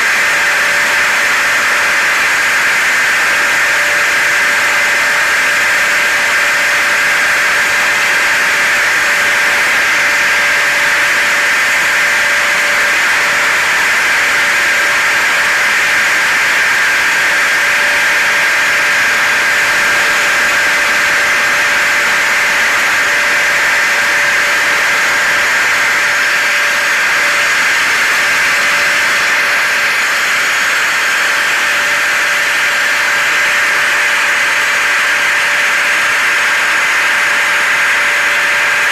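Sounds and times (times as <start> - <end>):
loud hiss with motor whine: 0.0 - 38.9.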